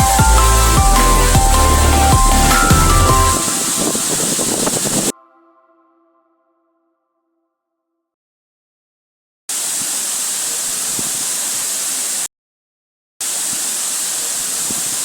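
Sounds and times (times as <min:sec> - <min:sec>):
waterfall rushing: 0:00.0 - 0:05.1, 0:13.3 - 0:15.0.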